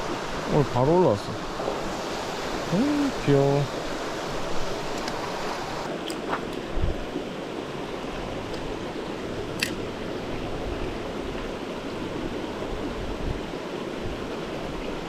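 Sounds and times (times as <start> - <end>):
stream water flowing: 0.0 - 15.0
sharp click: 9.6 - 9.8.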